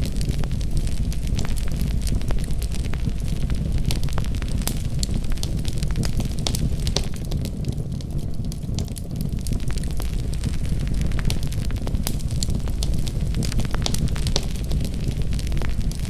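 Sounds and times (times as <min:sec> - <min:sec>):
fire crackles and pops: 0:00.0 - 0:16.0
fire rumbling: 0:00.0 - 0:16.0.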